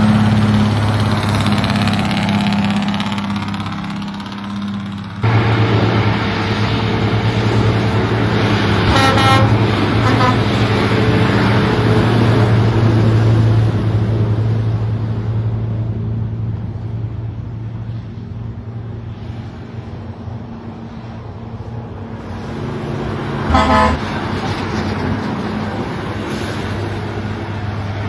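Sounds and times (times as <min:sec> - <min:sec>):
truck engine droning: 0:00.0 - 0:28.0
truck horn toot: 0:08.8 - 0:10.7, 0:23.5 - 0:24.2.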